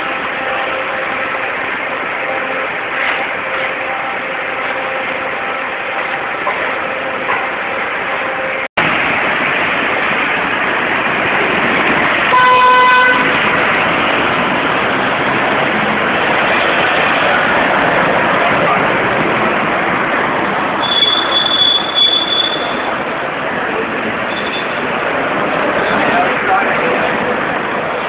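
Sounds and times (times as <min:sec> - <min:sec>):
street traffic: 0:00.0 - 0:28.0
vehicle horn honking: 0:12.3 - 0:13.4, 0:20.8 - 0:22.9.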